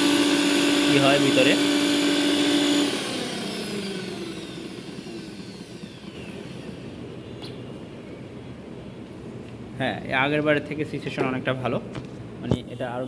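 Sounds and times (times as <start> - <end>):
grinder motor spinning down: 0.0 - 7.0.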